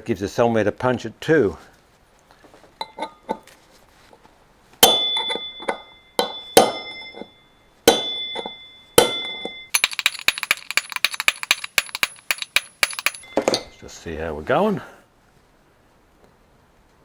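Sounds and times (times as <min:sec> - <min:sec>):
hammer striking metal punch: 0:04.8 - 0:13.8
sharp metallic clicks: 0:09.8 - 0:13.4.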